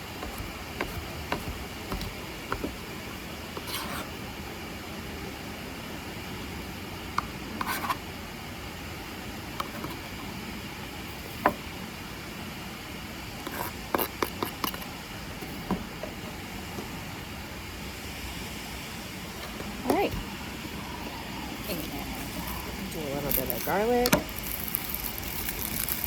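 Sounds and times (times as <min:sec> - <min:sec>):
utensils knocking on cutting board: 0:00.2 - 0:02.8.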